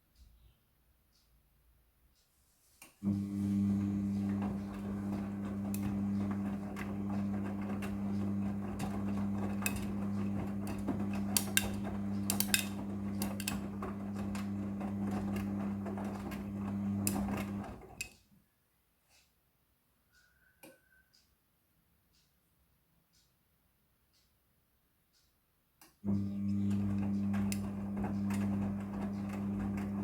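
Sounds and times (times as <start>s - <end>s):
washing machine motor humming: 3.0s - 18.0s, 26.0s - 30.0s
clicks and rattles: 6.8s - 14.4s.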